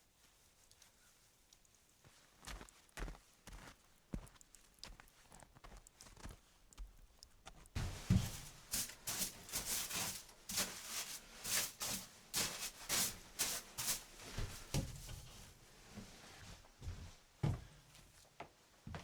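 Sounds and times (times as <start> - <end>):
rustling and handling noises: 4.5 - 17.2.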